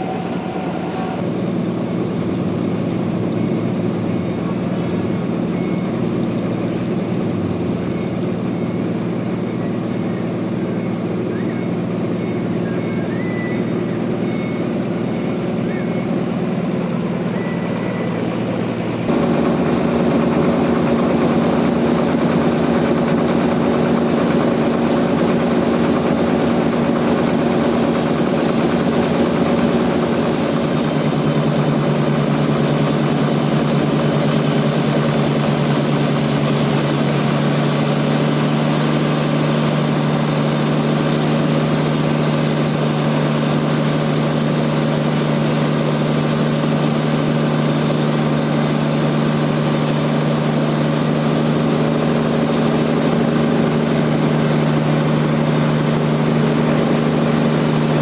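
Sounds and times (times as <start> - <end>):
deeper machine tone: 0.0 - 58.0
sawmill machinery engine running: 0.0 - 58.0.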